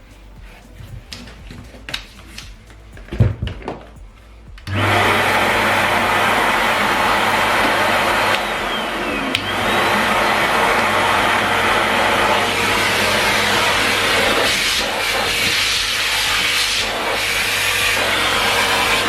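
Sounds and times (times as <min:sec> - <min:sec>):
vacuum cleaner running: 0:04.6 - 0:19.0
vacuum cleaner click: 0:04.7 - 0:17.3.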